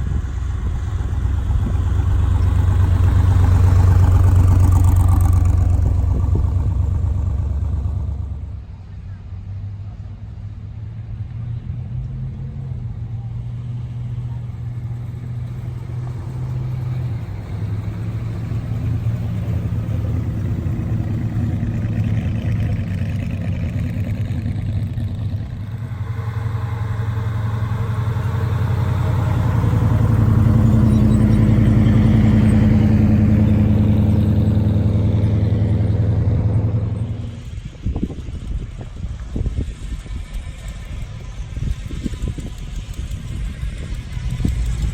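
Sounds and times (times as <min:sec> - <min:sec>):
car engine running: 0:00.0 - 0:09.2, 0:12.8 - 0:44.9.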